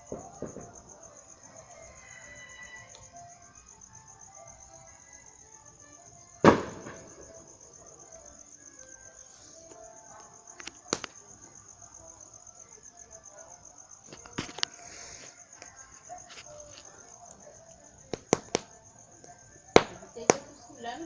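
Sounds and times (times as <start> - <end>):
crickets chirping: 0.0 - 21.0
sharp cracks: 6.4 - 7.3, 10.5 - 11.3, 18.0 - 20.6.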